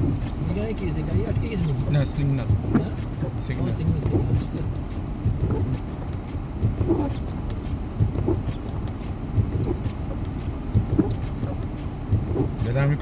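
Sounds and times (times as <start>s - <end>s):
vehicle engine and road noise: 0.0s - 13.0s
small irregular knocks: 1.2s - 12.7s.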